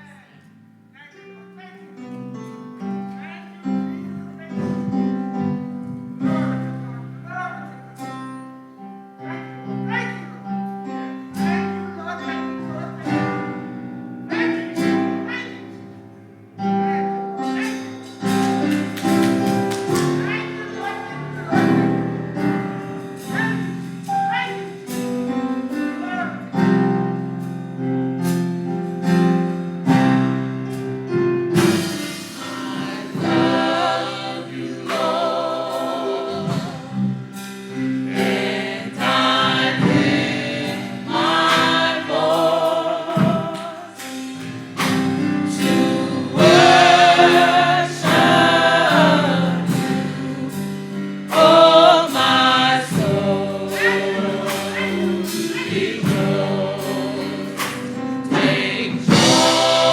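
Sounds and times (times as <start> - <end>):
keyboard chords: 0.0 - 59.9
choir singing with vibrato: 16.6 - 25.0, 31.6 - 59.9
steady beat: 31.6 - 50.7, 51.3 - 59.9.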